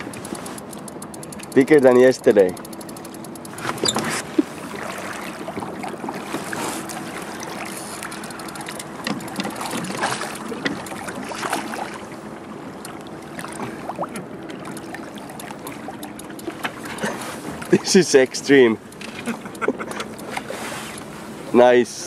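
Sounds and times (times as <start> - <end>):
river water running and splashing: 3.5 - 18.9.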